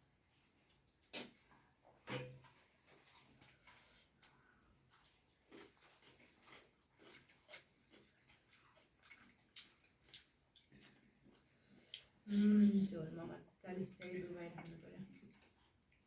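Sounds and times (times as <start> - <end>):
person chewing food: 0.4 - 12.3.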